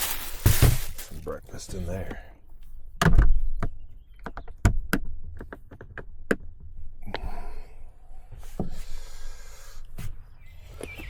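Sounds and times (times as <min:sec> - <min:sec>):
paper bag rustling: 0:00.0 - 0:01.4.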